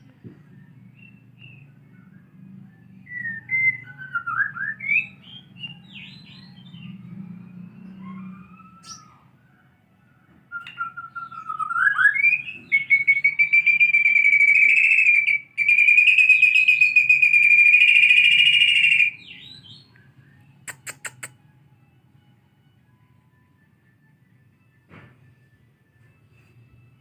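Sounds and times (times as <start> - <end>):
bird singing whistles and trills: 0.5 - 9.4, 10.5 - 21.3
sharp clicks: 20.7 - 21.4.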